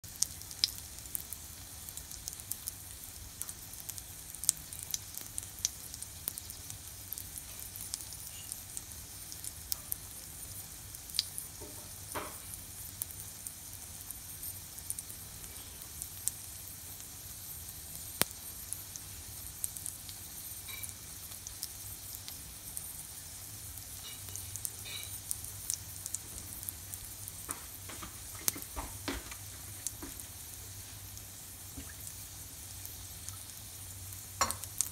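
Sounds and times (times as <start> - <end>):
oil popping and crackling: 0.0 - 34.9
pancake sizzling in oil: 0.0 - 34.9.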